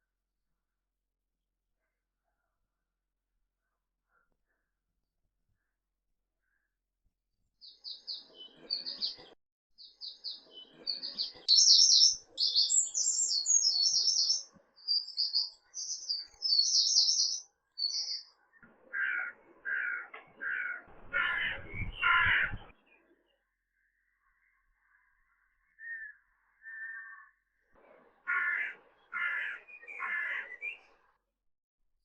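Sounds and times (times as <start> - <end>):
birds chirping and trilling: 7.6 - 31.2
lower bird calls: 9.8 - 23.1, 23.9 - 31.1.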